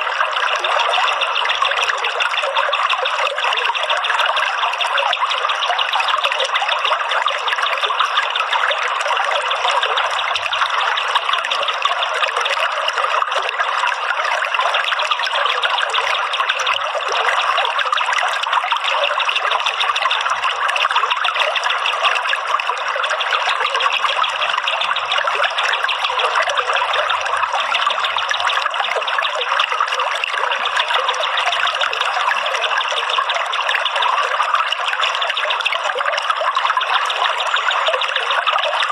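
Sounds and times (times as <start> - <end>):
trickling running water: 0.0 - 38.9.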